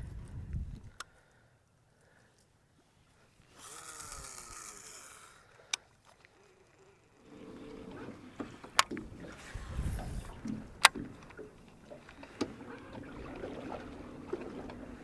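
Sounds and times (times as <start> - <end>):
fishing line whizzing off reel: 3.4 - 7.2.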